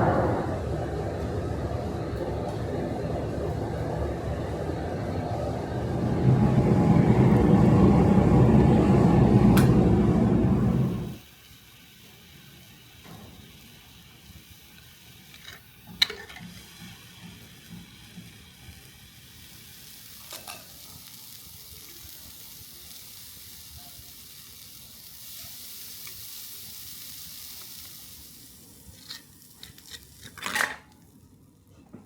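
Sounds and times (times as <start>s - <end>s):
faint sizzling hiss: 10.7s - 31.9s.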